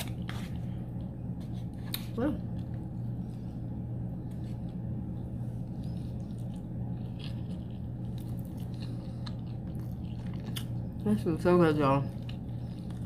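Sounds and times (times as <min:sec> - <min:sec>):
steady low hum: 0:00.0 - 0:13.0
person chewing: 0:04.3 - 0:11.0, 0:12.0 - 0:13.0.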